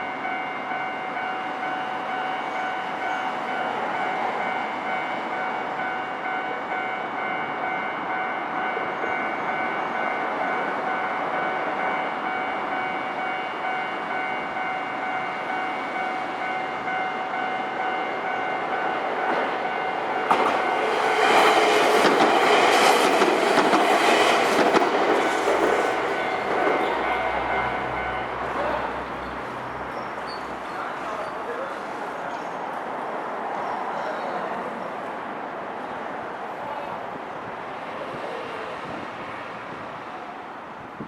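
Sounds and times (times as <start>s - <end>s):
electric train passing: 0.0s - 41.0s.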